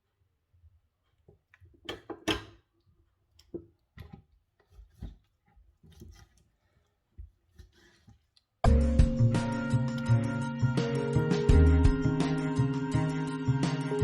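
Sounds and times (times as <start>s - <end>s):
kitchen items clicking and knocking: 1.7s - 2.7s.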